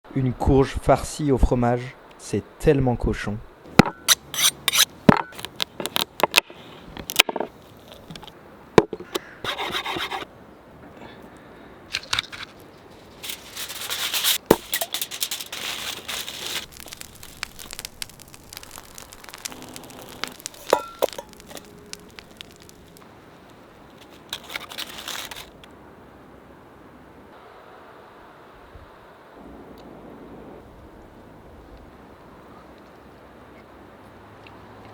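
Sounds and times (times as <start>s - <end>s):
scraping and rubbing: 4.0s - 4.9s, 9.5s - 10.3s, 12.0s - 23.1s, 23.9s - 25.7s.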